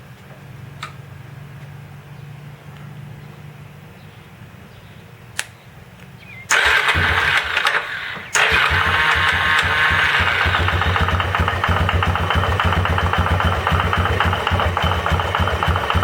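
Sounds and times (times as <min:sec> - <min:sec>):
click: 0:05.4 - 0:05.6
engine running with low pulsing: 0:06.2 - 0:16.0
engine knock: 0:06.5 - 0:16.0.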